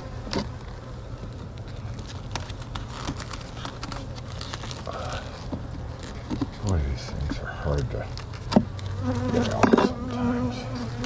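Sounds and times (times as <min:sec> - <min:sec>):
honeybees humming: 0:00.0 - 0:11.0
wooden frame clicking and scraping: 0:01.4 - 0:07.4.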